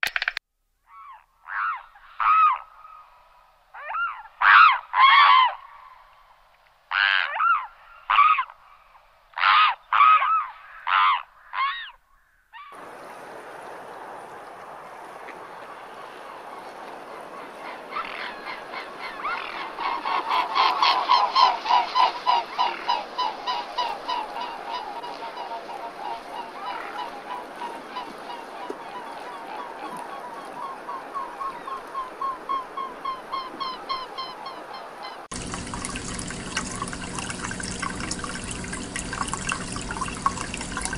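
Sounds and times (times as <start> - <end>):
waterfowl honking: 3.8 - 5.6, 6.9 - 8.5, 9.4 - 12.8, 17.2 - 40.9.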